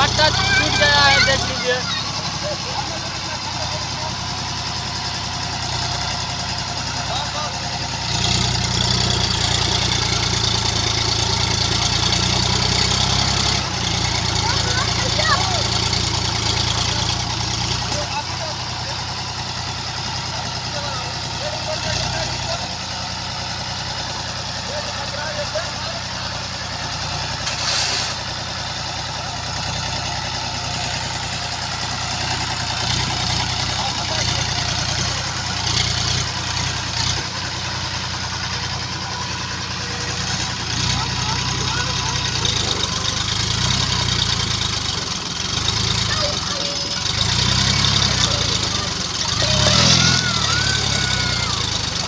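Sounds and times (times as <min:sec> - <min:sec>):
diesel tractor engine running: 0:00.0 - 0:52.0
brief hiss: 0:27.4 - 0:28.3.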